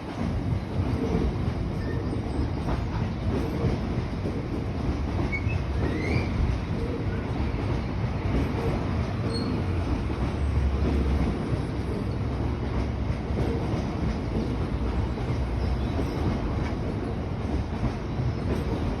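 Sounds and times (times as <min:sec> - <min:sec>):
train wagons rumbling on rails: 0:00.0 - 0:19.0
faint wheel squeaks: 0:09.2 - 0:09.7.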